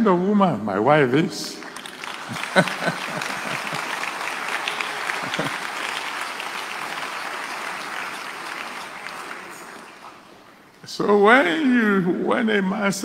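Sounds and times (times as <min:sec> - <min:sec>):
large audience applauding: 0:01.6 - 0:10.6.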